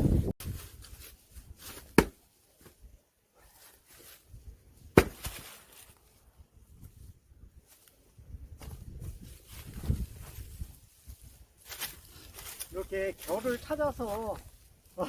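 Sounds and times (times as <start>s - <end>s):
axe striking log: 1.7s - 2.2s, 4.9s - 5.4s.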